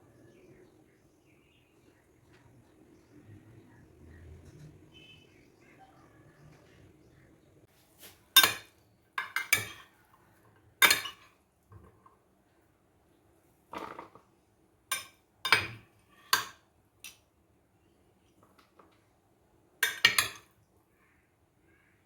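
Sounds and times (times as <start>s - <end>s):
utensils knocking against a dish: 8.4s - 9.9s, 10.8s - 11.3s, 14.9s - 16.6s, 19.8s - 20.5s.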